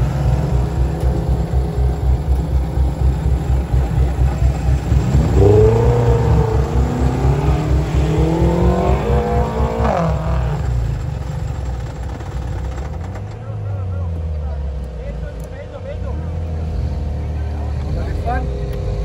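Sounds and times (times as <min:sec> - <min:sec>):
low rumble: 0:00.0 - 0:13.4
car engine accelerating: 0:00.0 - 0:19.0.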